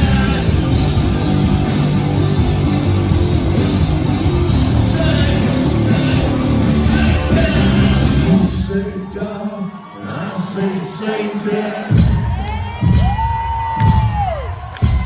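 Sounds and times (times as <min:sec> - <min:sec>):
pounding drum beat: 0:00.0 - 0:08.7, 0:11.9 - 0:15.0
heavy rock band playing live: 0:00.0 - 0:08.9
distorted guitars: 0:00.0 - 0:13.2.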